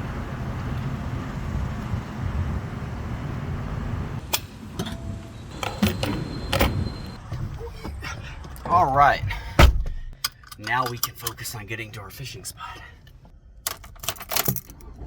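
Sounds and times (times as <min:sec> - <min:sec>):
low vehicle rumble: 0:00.0 - 0:10.2.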